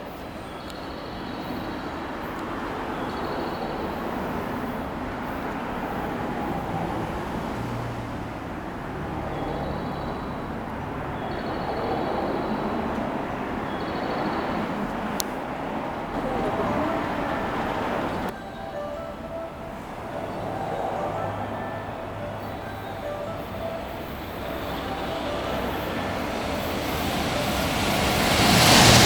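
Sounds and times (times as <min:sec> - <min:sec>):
freight train wheels on rails: 0:00.0 - 0:18.4, 0:19.3 - 0:29.0
faint high tone: 0:16.2 - 0:29.0.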